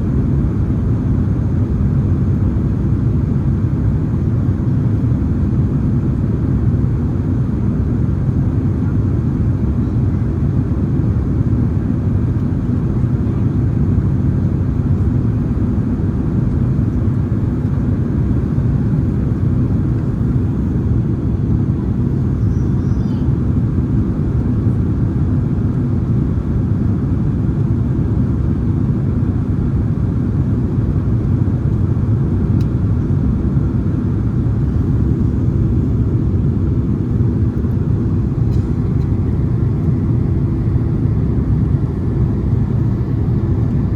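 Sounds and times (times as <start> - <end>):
jet engine and airflow drone: 0.0 - 43.9.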